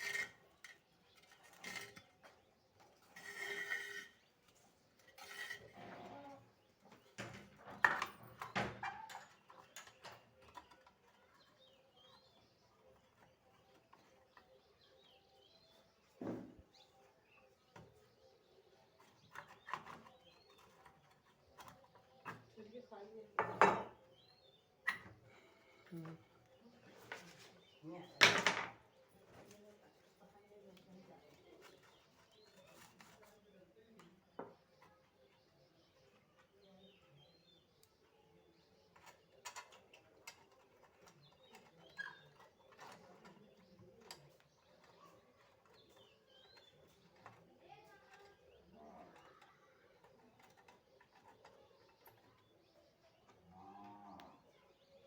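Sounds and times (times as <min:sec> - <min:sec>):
faint birds chirping: 0:00.0 - 0:55.0
faint chirp: 0:28.9 - 0:55.0.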